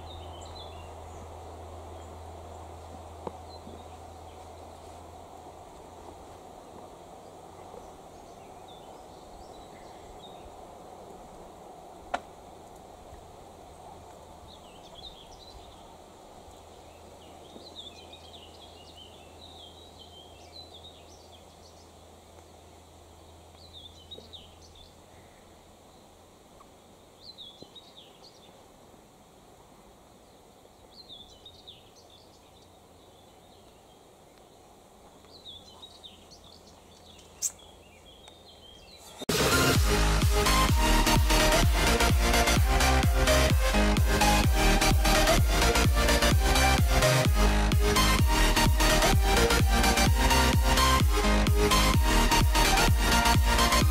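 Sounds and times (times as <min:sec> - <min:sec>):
faint steady hum: 0:00.0 - 0:53.9
songbirds chirping: 0:00.0 - 0:53.9.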